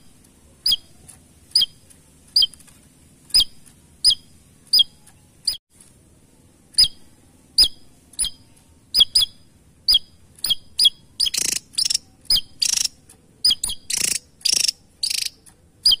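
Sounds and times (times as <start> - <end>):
bird chipping calls: 0.6 - 2.6, 3.3 - 5.6, 6.7 - 16.0
bird harsh rasping notes: 6.7 - 16.0.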